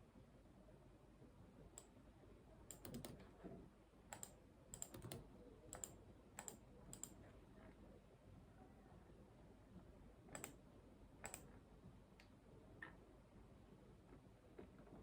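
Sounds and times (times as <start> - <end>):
computer keyboard typing: 2.7 - 3.2, 4.1 - 7.2, 10.3 - 10.6.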